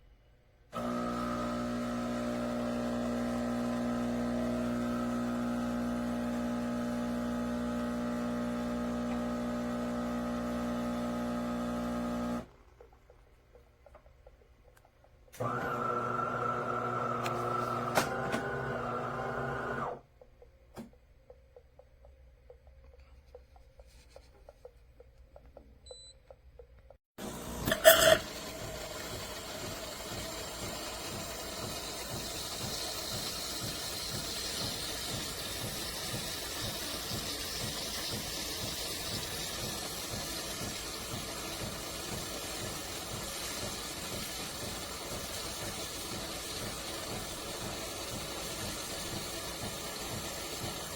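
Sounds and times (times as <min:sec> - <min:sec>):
espresso machine motor hum: 0:00.8 - 0:12.6, 0:15.4 - 0:20.0, 0:27.2 - 0:50.9.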